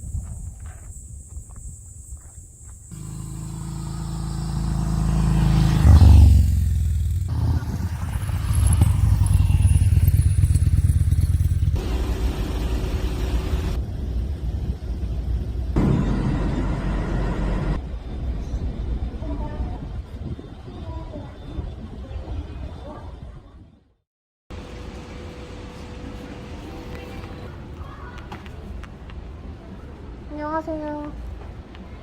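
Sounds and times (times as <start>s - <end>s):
motorcycle engine running: 2.9s - 17.8s.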